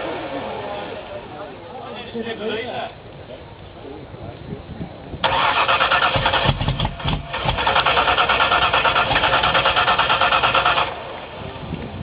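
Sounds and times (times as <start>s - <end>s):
car engine turning over: 5.2s - 12.0s.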